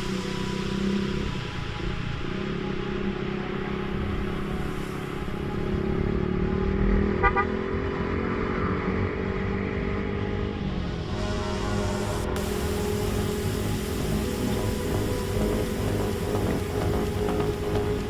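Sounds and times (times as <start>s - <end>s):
motorcycle engine running: 12.4s - 18.0s.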